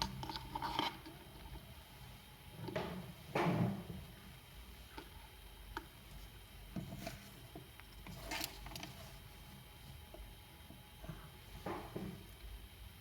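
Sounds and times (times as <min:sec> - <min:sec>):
rustling: 0:06.1 - 0:10.2.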